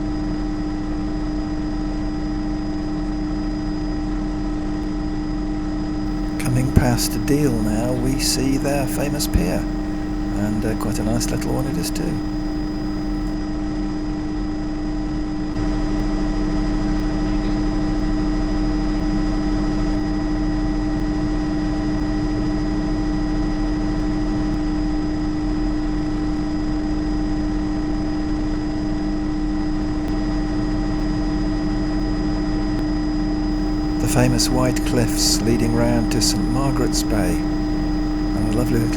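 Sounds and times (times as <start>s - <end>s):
helicopter turbine and rotor drone: 1.0s - 13.3s, 33.6s - 38.9s
high whines: 6.2s - 13.3s, 33.6s - 38.9s.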